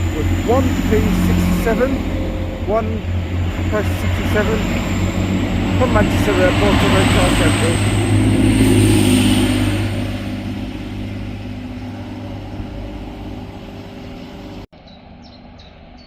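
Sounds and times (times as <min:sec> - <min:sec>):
diesel train engines humming: 0:00.0 - 0:15.3
small birds chirping: 0:13.7 - 0:16.0.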